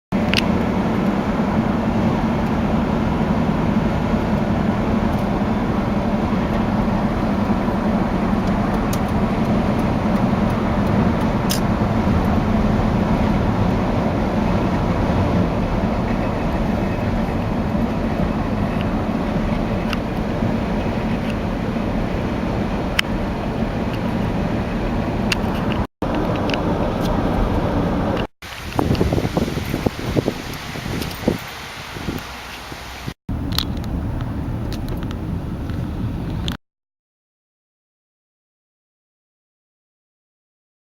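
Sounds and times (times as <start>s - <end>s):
low engine drone: 0.1s - 30.2s
tyres on the road: 0.1s - 36.6s
vehicle engines: 0.1s - 36.6s.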